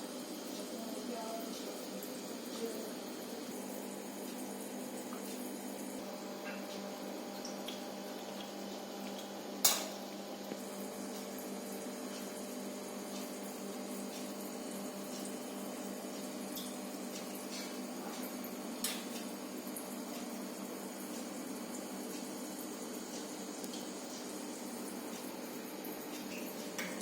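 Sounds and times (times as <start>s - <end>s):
aquarium water bubbling: 0.0s - 27.0s.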